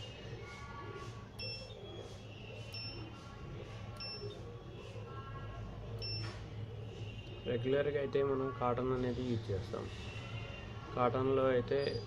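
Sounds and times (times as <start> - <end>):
washing machine panel beeps: 1.3 - 3.2, 3.9 - 4.4, 6.0 - 6.4.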